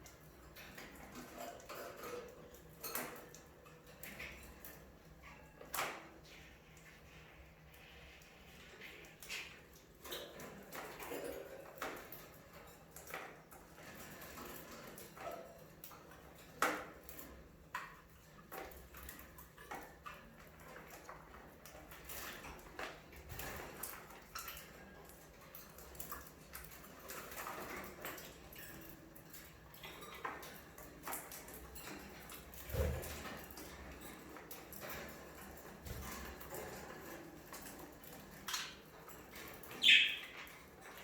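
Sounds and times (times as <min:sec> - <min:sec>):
budgerigars chirping: 0:39.8 - 0:40.4.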